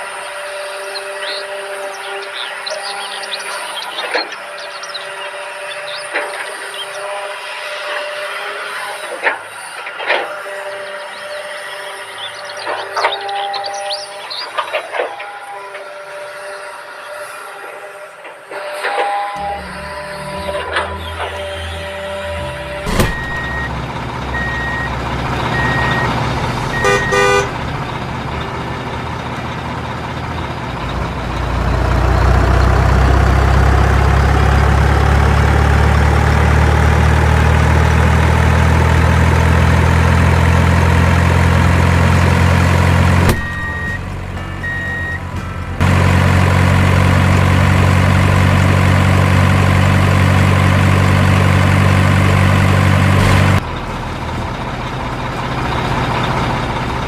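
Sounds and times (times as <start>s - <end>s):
toy excavator motor drone: 0.0s - 23.7s.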